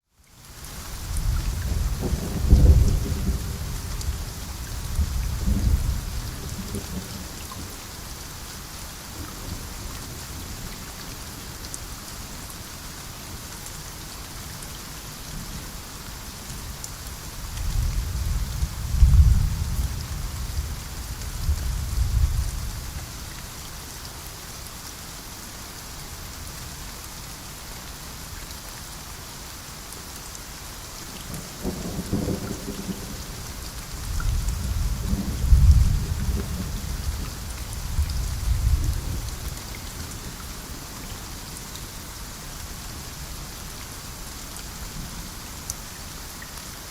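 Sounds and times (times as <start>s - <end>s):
heavy rain: 0.0s - 46.9s
low thunder rolling: 1.3s - 3.9s, 34.0s - 37.3s.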